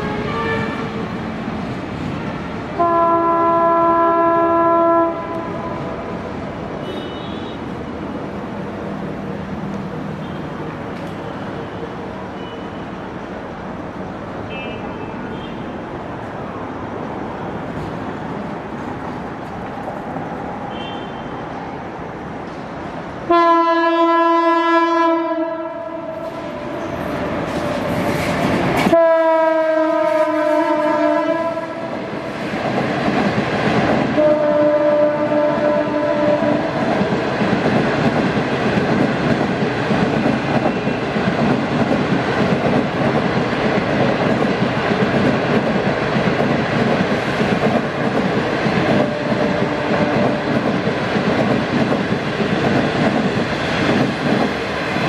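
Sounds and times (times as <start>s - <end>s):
locomotive horn blasts: 0.0s - 0.9s, 2.8s - 5.8s, 6.8s - 7.6s, 23.3s - 26.7s, 28.9s - 31.9s, 34.2s - 36.7s
train wheels rumbling on rail: 0.0s - 55.0s.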